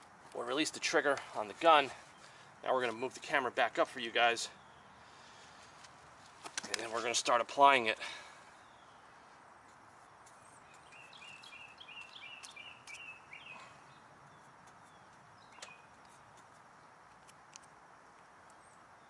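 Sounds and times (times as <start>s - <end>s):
bird chirps: 8.5s - 9.3s, 10.2s - 16.5s.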